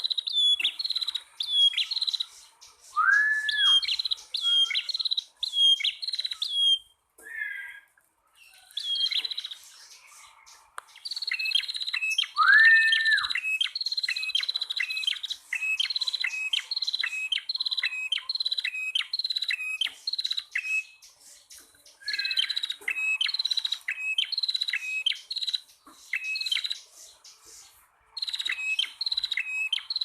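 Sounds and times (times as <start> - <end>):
bird chirps: 0.0 - 30.0
rising bird whistle: 2.9 - 7.8, 11.3 - 20.9.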